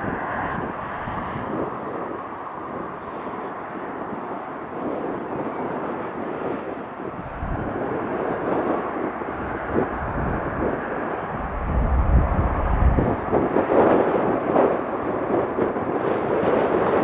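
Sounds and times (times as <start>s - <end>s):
airplane engine: 0.0s - 17.0s
wind buffeting microphone: 0.0s - 17.0s.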